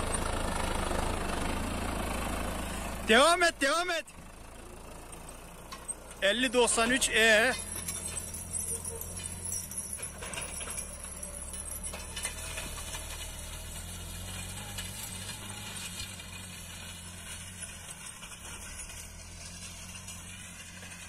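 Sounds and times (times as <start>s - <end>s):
tractor diesel engine running: 0.0s - 21.0s
rattling: 5.3s - 16.6s.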